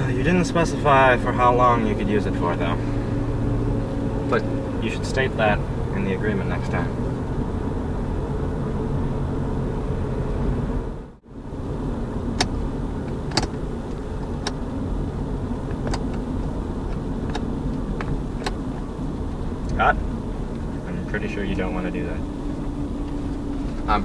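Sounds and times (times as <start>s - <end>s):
car cabin rumble: 0.0s - 24.0s
sharp clicks: 12.4s - 13.6s.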